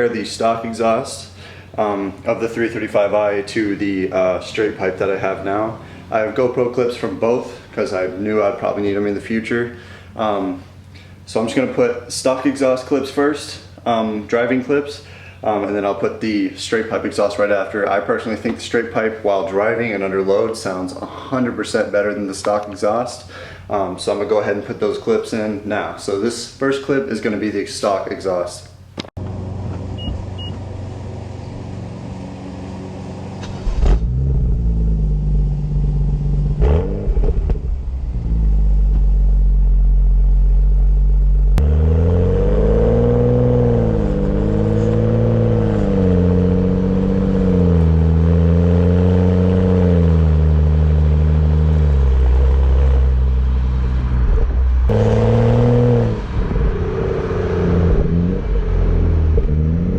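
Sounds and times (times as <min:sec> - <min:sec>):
car engine accelerating: 0:30.7 - 0:59.9.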